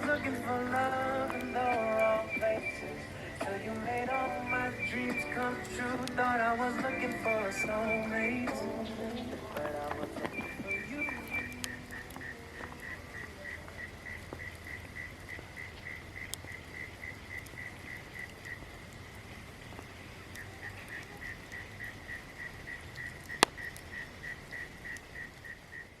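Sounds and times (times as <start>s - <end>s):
high chirping call: 0.0s - 17.7s
campfire crackling and popping: 0.0s - 26.0s.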